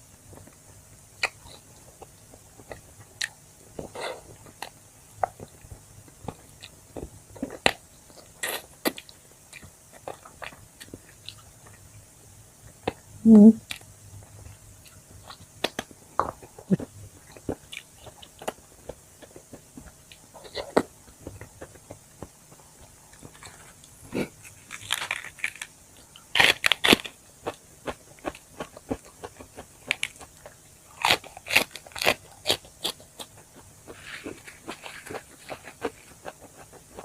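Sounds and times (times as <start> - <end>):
person chewing crunchy food: 1.2 - 11.9, 13.6 - 37.0.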